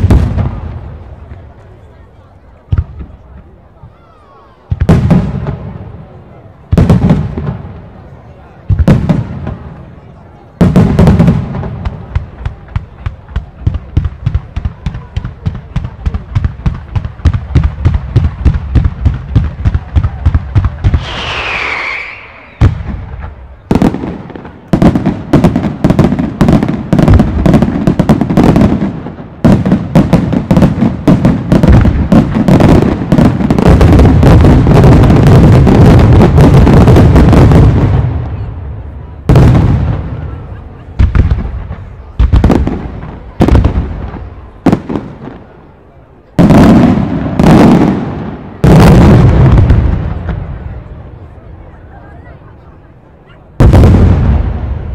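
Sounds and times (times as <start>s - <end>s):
fireworks crackling: 0.0s - 3.8s, 4.4s - 51.4s, 53.6s - 54.9s
fireworks exploding: 0.0s - 54.9s
firework high whistle: 20.9s - 23.4s.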